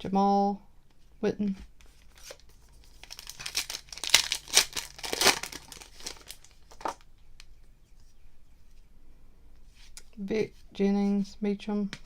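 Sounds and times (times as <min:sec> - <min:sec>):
plastic wrapper crinkling: 0:02.0 - 0:07.1.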